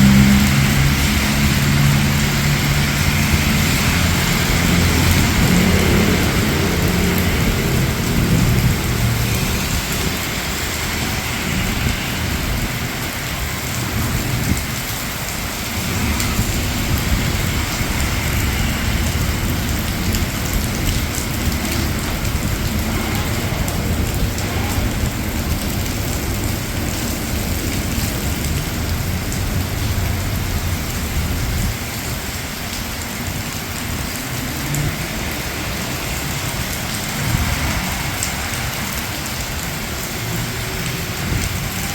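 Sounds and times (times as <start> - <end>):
low rumble: 0.0 - 32.8
steady rain falling: 0.0 - 41.9.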